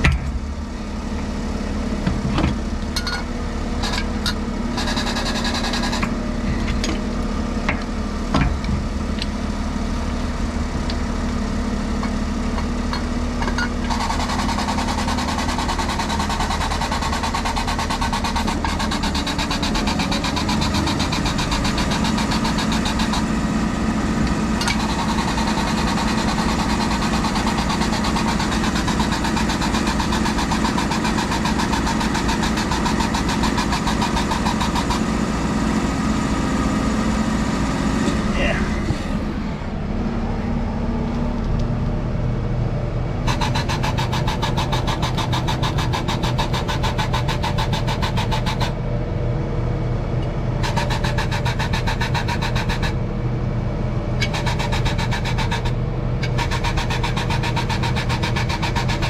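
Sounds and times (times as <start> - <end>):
engine running: 0.0 - 59.0
metal clanks: 2.4 - 5.1.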